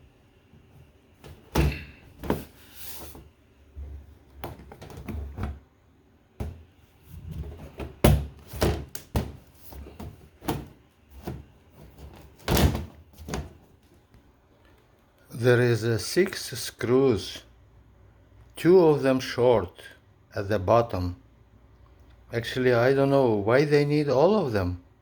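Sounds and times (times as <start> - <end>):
plastic cover knocks and thuds: 1.2 - 5.6, 6.4 - 13.6.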